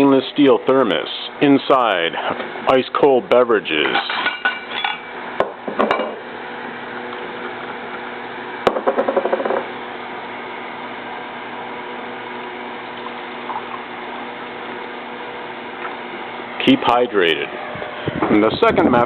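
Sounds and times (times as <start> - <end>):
drink pouring hiss: 12.2 - 14.9.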